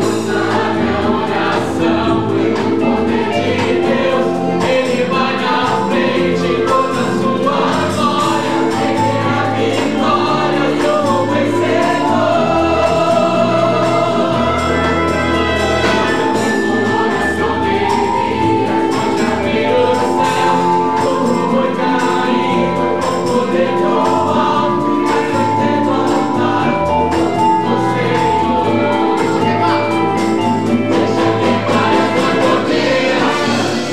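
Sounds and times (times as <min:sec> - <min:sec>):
choir singing a gospel hymn: 0:00.0 - 0:33.9
instrumental accompaniment with beat: 0:00.0 - 0:33.9.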